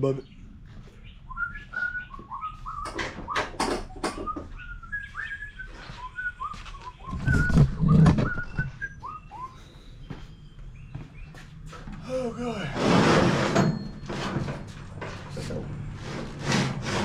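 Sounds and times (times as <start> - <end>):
high whistled chirps: 1.2 - 3.5, 4.2 - 10.6.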